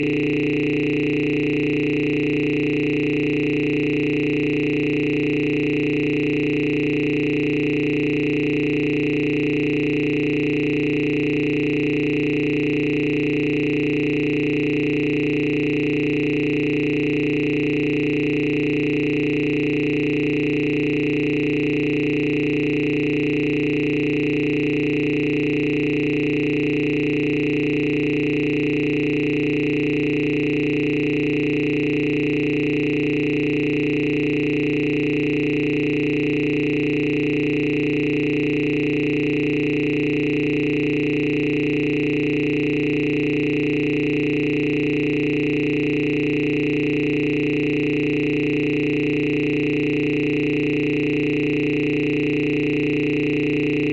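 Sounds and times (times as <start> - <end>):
electronic drone of held tones: 0.0 - 20.6.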